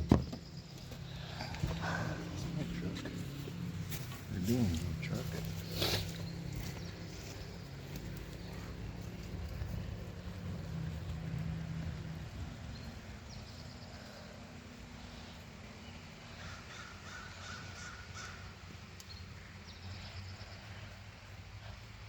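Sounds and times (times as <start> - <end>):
crow cawing: 16.4 - 18.7.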